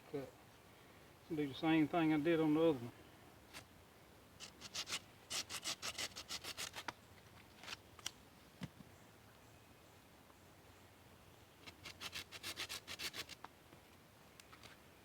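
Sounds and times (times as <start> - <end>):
hand saw cutting wood: 4.4 - 6.9, 11.7 - 13.4.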